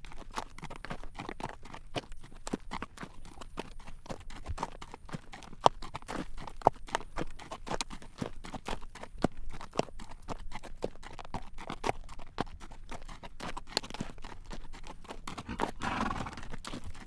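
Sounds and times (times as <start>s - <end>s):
horse hooves clip-clopping on road: 0.0s - 17.0s.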